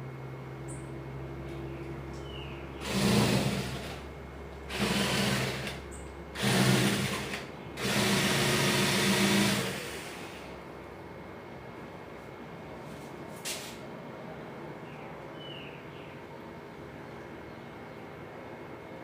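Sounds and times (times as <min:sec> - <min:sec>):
small electric motor running: 0:02.8 - 0:04.1, 0:04.7 - 0:10.5.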